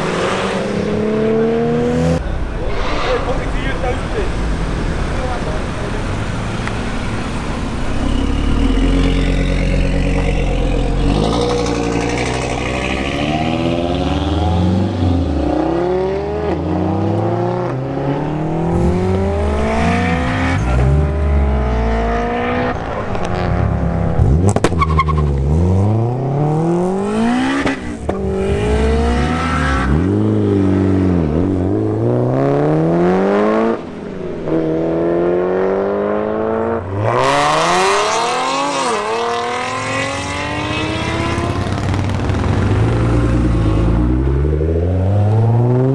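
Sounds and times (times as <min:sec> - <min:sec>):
car engines revving through gears: 0:00.0 - 0:45.9
sharp crack: 0:01.8 - 0:13.6, 0:24.4 - 0:25.3.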